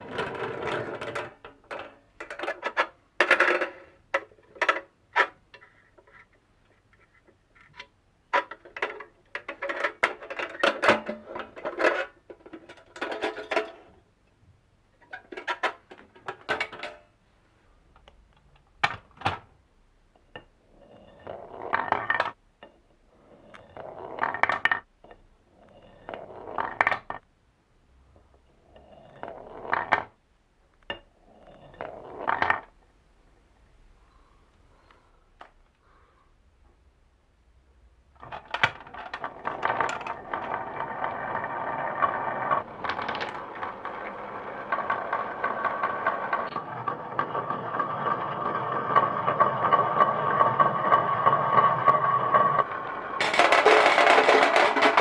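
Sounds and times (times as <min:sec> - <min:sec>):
marbles clattering down wooden run: 0:39.0 - 0:52.0, 0:52.6 - 0:55.0.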